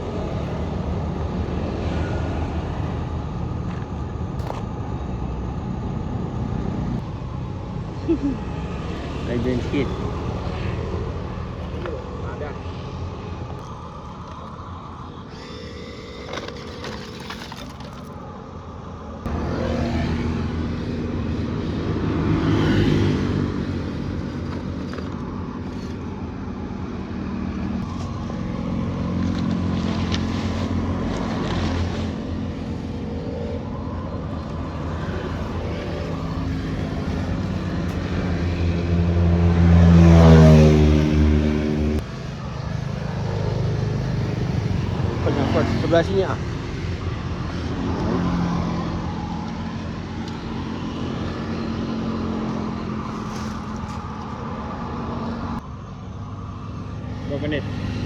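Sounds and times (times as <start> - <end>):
toy truck motors whining: 13.5 - 18.8, 23.6 - 26.2, 27.8 - 38.8, 53.0 - 54.4.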